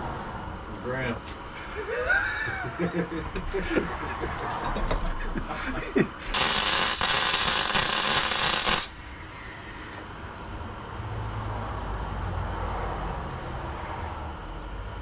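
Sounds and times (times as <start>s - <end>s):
welding arc crackling and hissing: 6.3s - 10.1s.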